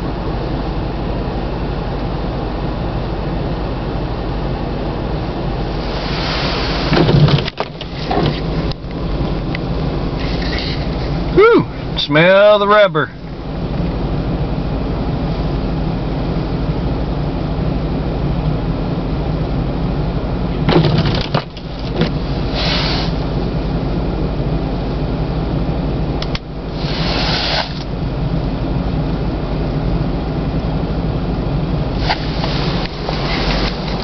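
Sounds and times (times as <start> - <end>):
vehicle engine droning: 0.0 - 34.0
hissing swishes: 5.7 - 7.0, 22.4 - 23.2, 26.7 - 27.9, 32.0 - 34.0.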